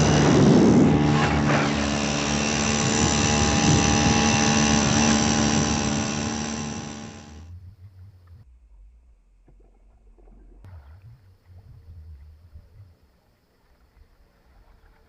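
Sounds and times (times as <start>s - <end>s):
kayak motor running: 0.0s - 7.6s.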